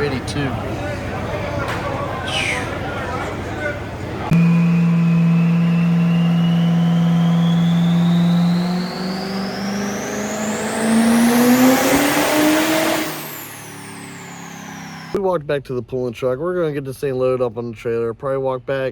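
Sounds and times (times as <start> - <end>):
diesel truck engine revving: 4.3 - 15.2
turbo whistle: 4.3 - 15.2.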